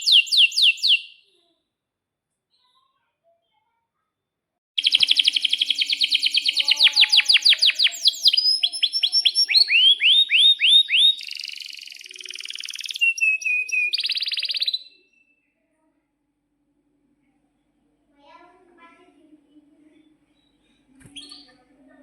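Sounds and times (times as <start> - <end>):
canary singing: 0.0 - 1.3, 4.8 - 15.4, 20.0 - 21.7.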